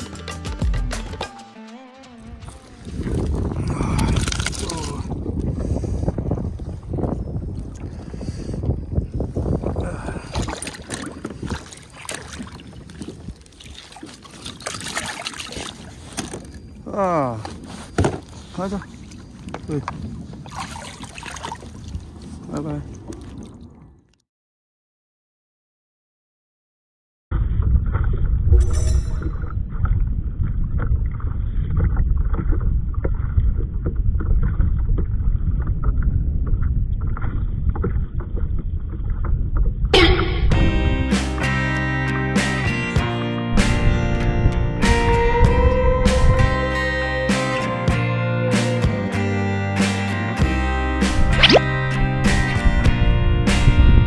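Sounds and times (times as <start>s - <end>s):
wind rumbling on microphone: 2.3s - 24.1s, 27.3s - 41.2s, 43.5s - 47.0s, 51.1s - 54.0s
water splashing and dripping: 2.5s - 5.8s, 9.7s - 16.8s, 18.2s - 23.9s, 51.2s - 51.8s.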